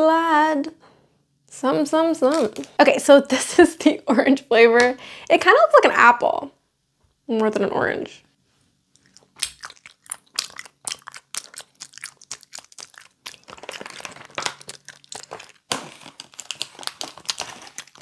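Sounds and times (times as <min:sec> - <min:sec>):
chewing gummy candy: 0:09.0 - 0:18.0
plastic candy bag crinkling: 0:09.0 - 0:18.0.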